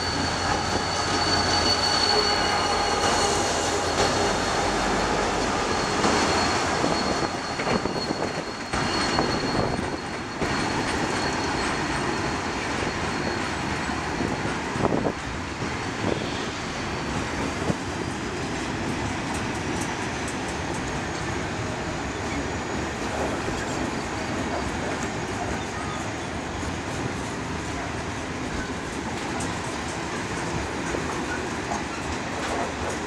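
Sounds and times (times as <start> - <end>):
high wheel squeal: 0.0 - 15.2, 15.8 - 18.2, 21.2 - 27.9
train wheels clattering on rails: 0.0 - 33.0.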